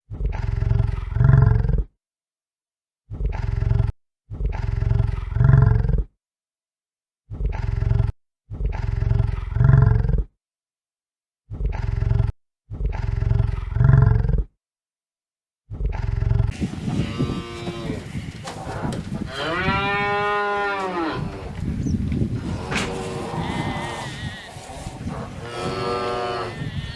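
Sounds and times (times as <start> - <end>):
large animal's deep call: 22.4 - 26.9.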